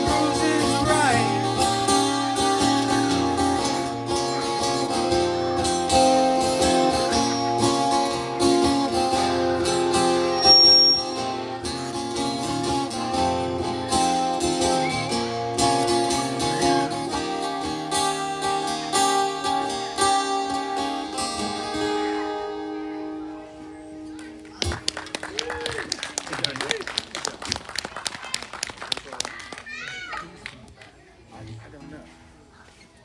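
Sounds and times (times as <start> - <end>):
strummed and picked guitar chords: 0.0 - 24.7.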